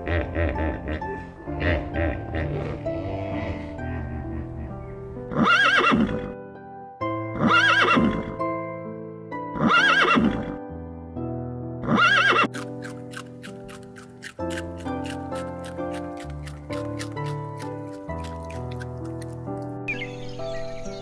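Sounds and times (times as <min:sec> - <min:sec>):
background music: 0:00.0 - 0:21.0
horse whinnying: 0:05.3 - 0:06.4, 0:07.4 - 0:08.4, 0:09.6 - 0:10.5, 0:11.8 - 0:12.8.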